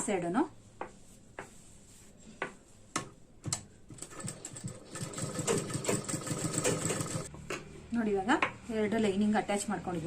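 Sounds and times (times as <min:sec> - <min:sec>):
sewing machine stitching: 0:03.9 - 0:07.3.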